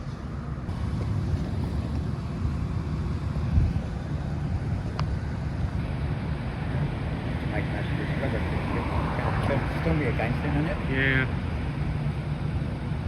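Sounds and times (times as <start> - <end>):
street traffic rumble: 0.0 - 13.0
wind on microphone: 3.3 - 4.9.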